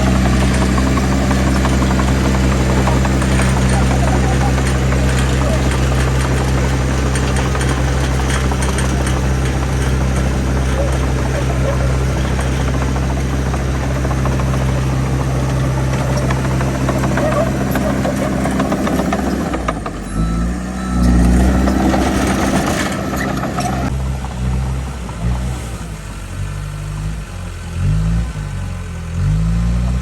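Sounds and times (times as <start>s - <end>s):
diesel engine running: 0.0s - 30.0s
different engine tone: 0.0s - 30.0s.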